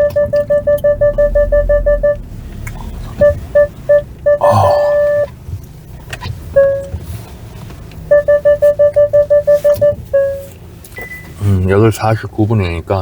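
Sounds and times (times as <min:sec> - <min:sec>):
parking sensor beeps: 0:00.0 - 0:02.2, 0:03.2 - 0:05.4, 0:06.5 - 0:07.0, 0:08.1 - 0:11.4
low engine hum: 0:00.0 - 0:13.0.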